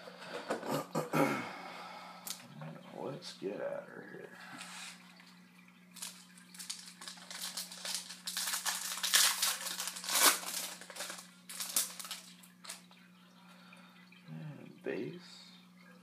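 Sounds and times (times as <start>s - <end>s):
low electrical hum: 0.0s - 16.0s
wrapper tearing and crinkling: 6.0s - 12.9s.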